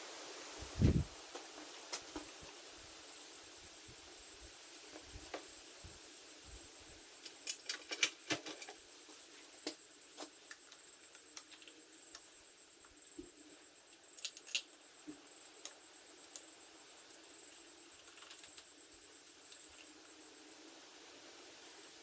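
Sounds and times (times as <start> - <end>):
small metal parts handled: 14.2 - 14.7.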